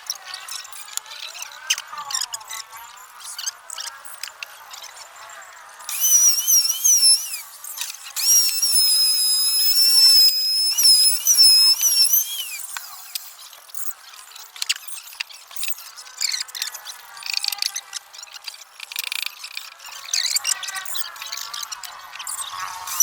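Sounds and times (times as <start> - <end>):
power tool motor whine: 5.9 - 13.5, 22.8 - 23.0.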